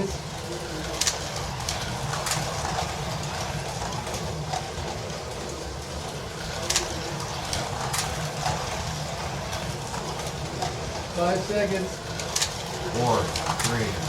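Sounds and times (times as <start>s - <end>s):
slot car motors whirring: 0.0s - 14.0s.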